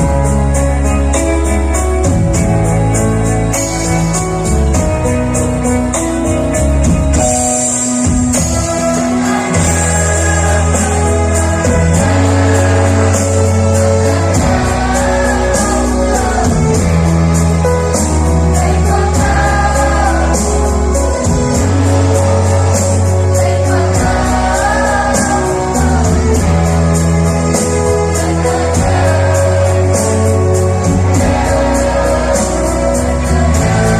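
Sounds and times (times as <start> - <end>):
backing music track: 0.0 - 33.9
choir singing: 8.2 - 33.9.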